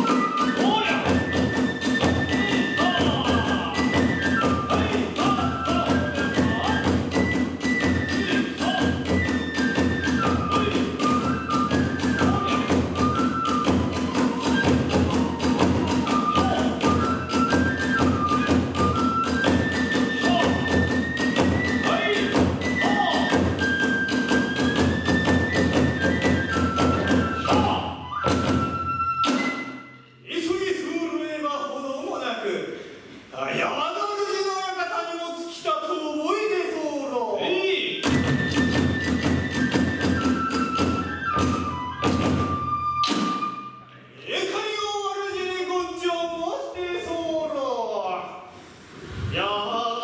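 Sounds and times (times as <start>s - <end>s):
fast drum beats: 0.0s - 27.8s
high bamboo flute melody: 0.0s - 30.2s, 38.0s - 44.0s.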